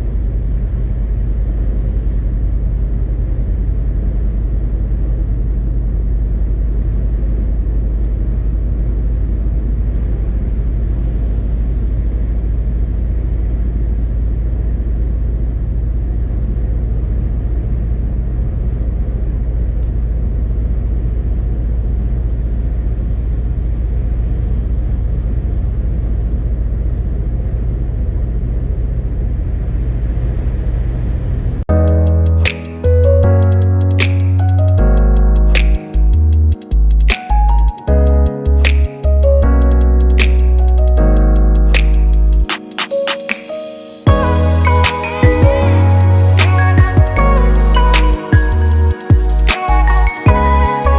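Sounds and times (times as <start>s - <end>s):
truck diesel engine rumbling: 44.1s - 50.9s.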